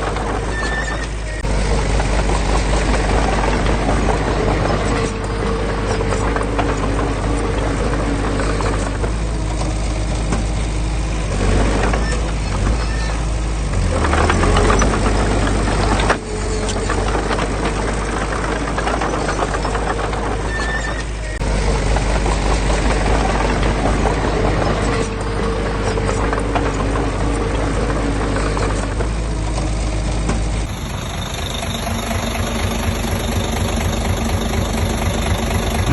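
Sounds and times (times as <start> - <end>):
diesel engine running under load: 0.0 - 35.9.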